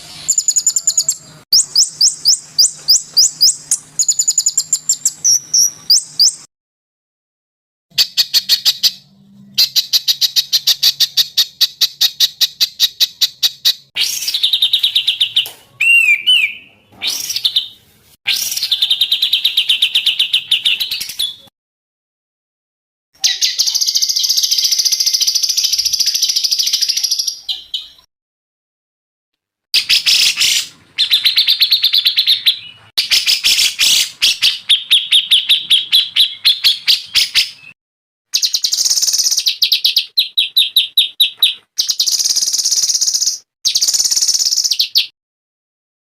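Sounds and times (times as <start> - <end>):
songbirds singing: 0.0 - 6.5, 29.8 - 37.8, 38.4 - 45.1.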